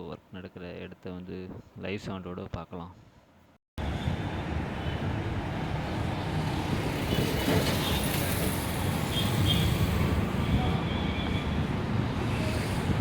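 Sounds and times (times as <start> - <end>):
busy road traffic rumble: 3.8 - 13.0.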